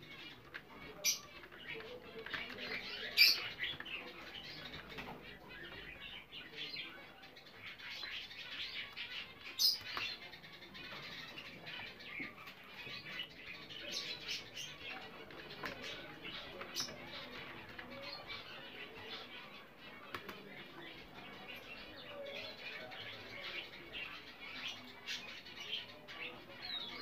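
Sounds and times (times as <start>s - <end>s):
budgerigars chirping and warbling: 0.0s - 27.0s.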